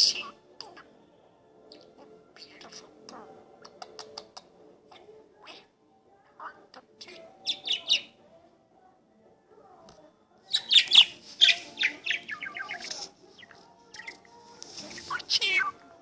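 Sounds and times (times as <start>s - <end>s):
budgerigar chirping and warbling: 6.4s - 8.2s, 10.5s - 13.0s.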